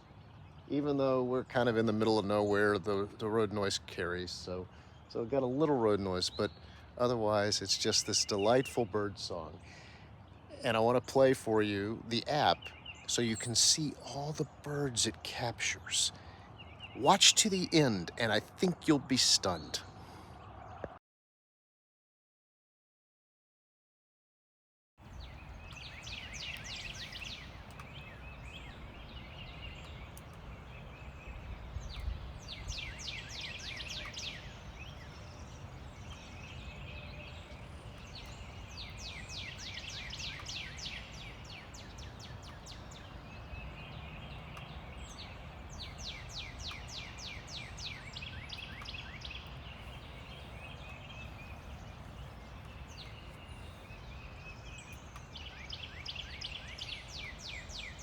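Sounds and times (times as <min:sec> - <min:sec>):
songbirds chirping: 0:00.0 - 0:21.0, 0:25.0 - 0:58.0
distant road traffic rumble: 0:05.5 - 0:19.8, 0:25.0 - 0:58.0.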